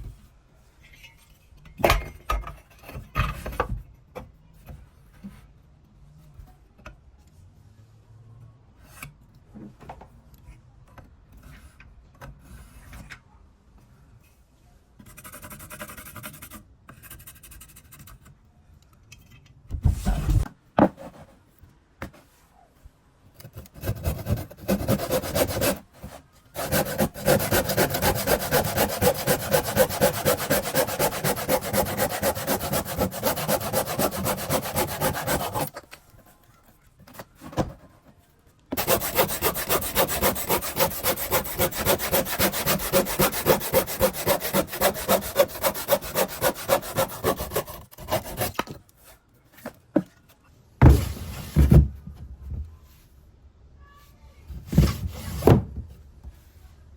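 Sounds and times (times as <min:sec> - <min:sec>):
knocks and handling sounds: 0:18.1 - 0:22.6, 0:35.5 - 0:39.0, 0:48.4 - 0:52.8
hand tool scraping wood: 0:23.5 - 0:35.8, 0:38.8 - 0:48.7.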